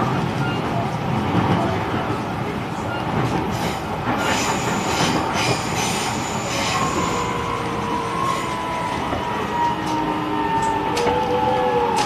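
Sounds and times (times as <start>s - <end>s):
train running over rails: 0.0s - 12.0s
high wheel squeal: 3.6s - 7.6s.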